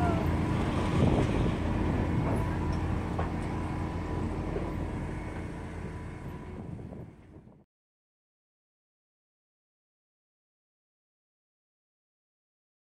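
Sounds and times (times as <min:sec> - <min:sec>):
train rolling on rails: 0:00.0 - 0:07.6.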